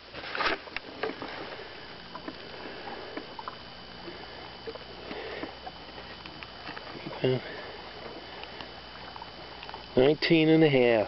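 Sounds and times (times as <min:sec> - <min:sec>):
faint steady hum: 0:00.0 - 0:11.0
brief rustle: 0:00.1 - 0:01.2.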